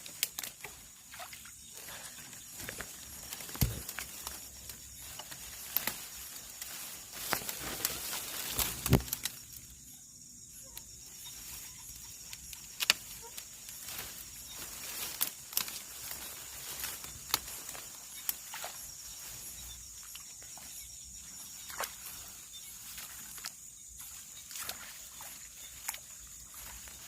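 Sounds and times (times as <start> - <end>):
rustling through vegetation: 0.0 - 9.9, 10.6 - 27.0
night insects chorus: 0.0 - 27.0.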